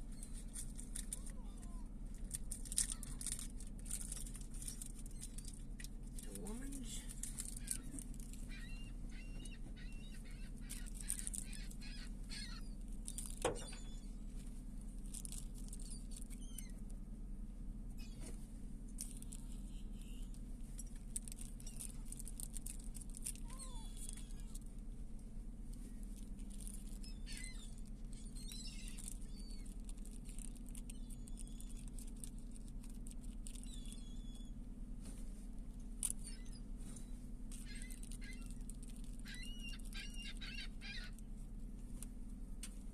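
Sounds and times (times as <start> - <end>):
steady low hum: 0.0 - 42.9
seagulls calling: 6.4 - 14.2, 22.6 - 24.6, 26.6 - 29.8, 36.0 - 36.7, 37.5 - 41.2.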